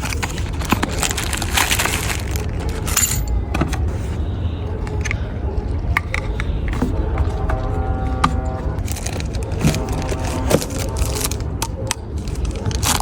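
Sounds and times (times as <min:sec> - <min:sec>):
packaging rustling: 0:00.0 - 0:03.9, 0:08.8 - 0:13.0
steady low rumble: 0:00.0 - 0:13.0.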